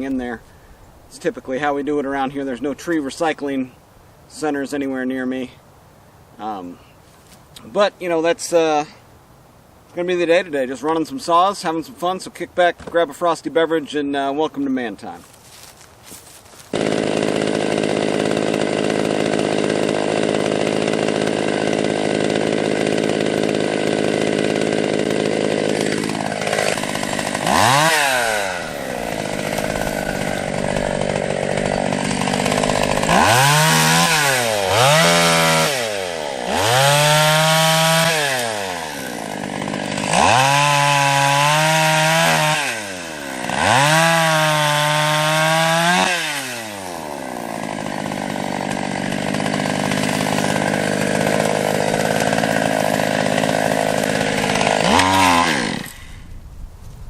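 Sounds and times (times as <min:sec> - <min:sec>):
chainsaw engine revving: 0:15.6 - 0:56.3.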